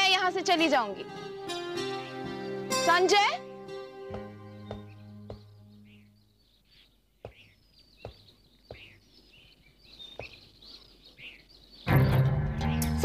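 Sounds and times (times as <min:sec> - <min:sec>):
low background music note: 0:00.0 - 0:06.2
faint birds chirping: 0:00.0 - 0:13.0.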